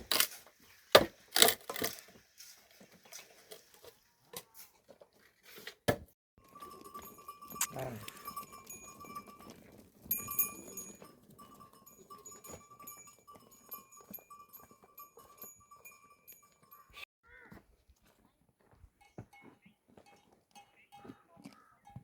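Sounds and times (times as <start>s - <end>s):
thin high pulsing tone: 6.4s - 17.0s.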